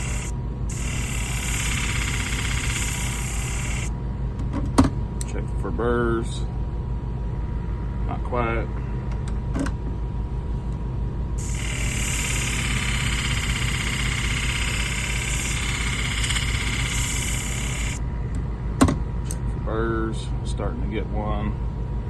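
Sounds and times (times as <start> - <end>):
blade grinding on hone: 0.0 - 3.9, 11.4 - 18.0
motor hum: 0.0 - 5.4, 8.8 - 20.5.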